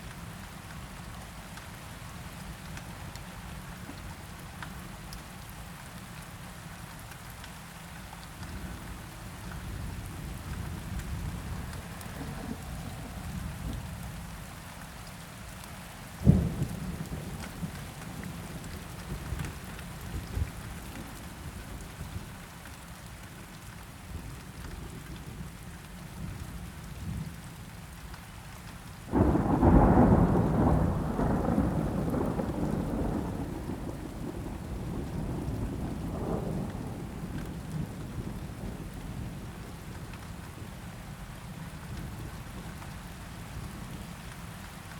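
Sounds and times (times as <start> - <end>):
steady rain: 0.0 - 44.9
rolling thunder rumble: 10.1 - 14.3, 29.1 - 39.6.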